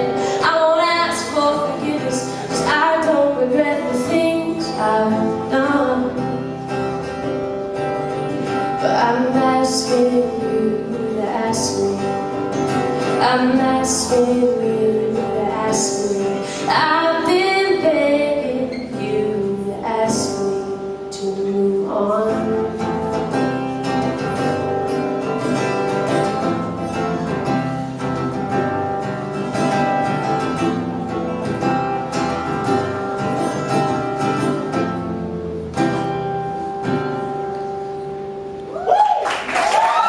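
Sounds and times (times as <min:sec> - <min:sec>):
guitar: 0:00.0 - 0:40.0
audience cheering and whooping: 0:38.6 - 0:40.0.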